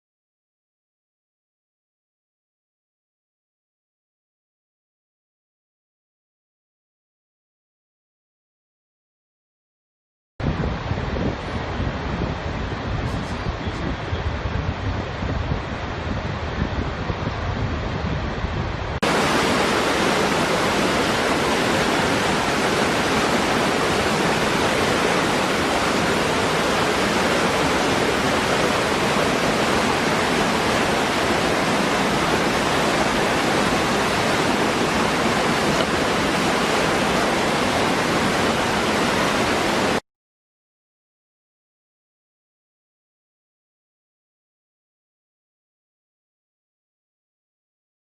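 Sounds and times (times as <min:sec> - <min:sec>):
waterfall roaring: 0:10.6 - 0:40.0.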